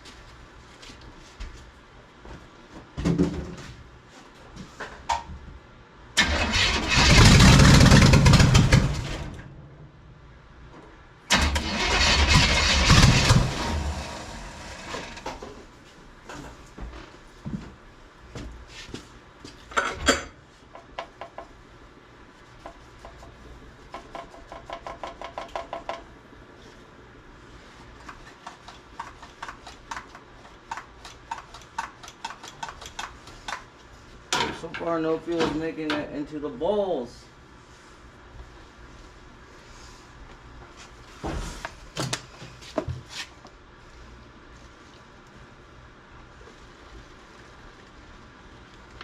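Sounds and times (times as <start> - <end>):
engine starter cranking: 6.2 - 9.3, 11.3 - 15.2.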